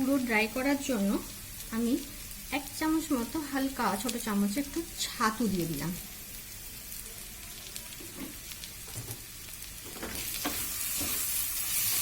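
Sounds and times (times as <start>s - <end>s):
chicken sizzling in a pan: 0.0s - 12.0s
spatula scraping and stirring: 8.0s - 12.0s.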